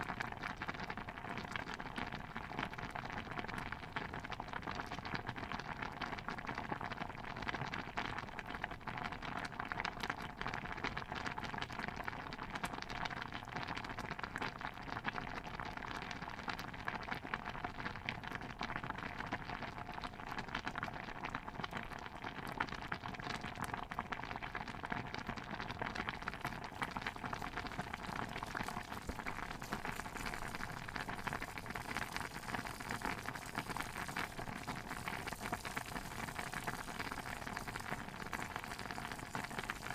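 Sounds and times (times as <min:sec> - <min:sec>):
stew bubbling in a cauldron: 0:00.0 - 0:39.9.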